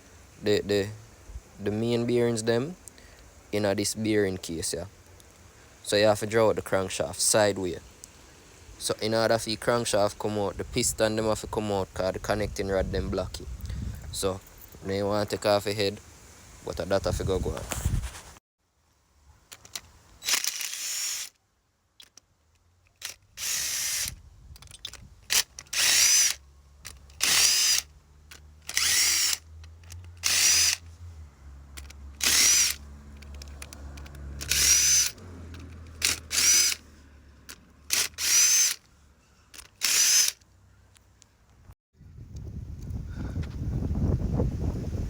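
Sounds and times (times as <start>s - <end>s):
power drill bursts: 20.2s - 21.3s, 23.4s - 24.2s, 25.4s - 26.4s, 27.2s - 27.9s, 28.7s - 29.4s, 30.2s - 30.8s, 32.2s - 32.8s, 34.4s - 35.2s, 36.0s - 36.8s, 37.9s - 38.8s, 39.8s - 40.4s.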